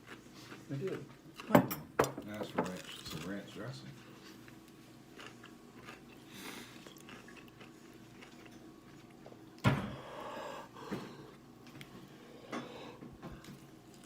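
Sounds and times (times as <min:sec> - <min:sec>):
biting and chewing: 0:05.1 - 0:09.2.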